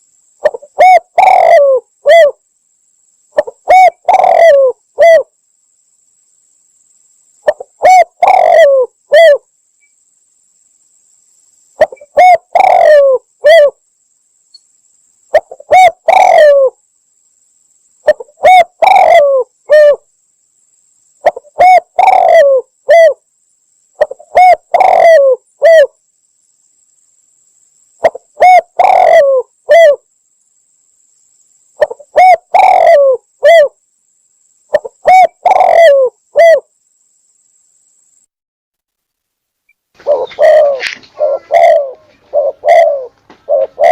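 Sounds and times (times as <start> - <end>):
dove cooing: 0.4 - 2.4, 3.4 - 5.3, 7.4 - 9.5, 11.8 - 13.8, 15.3 - 16.8, 18.0 - 20.0, 21.2 - 23.2, 24.0 - 26.0, 28.0 - 30.1, 31.8 - 33.8, 34.7 - 36.7, 40.0 - 43.9.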